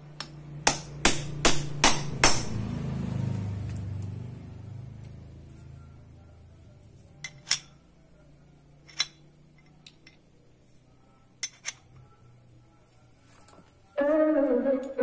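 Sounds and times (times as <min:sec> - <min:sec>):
metal parts clinking: 0:07.2 - 0:07.8, 0:08.8 - 0:10.2, 0:11.4 - 0:11.9.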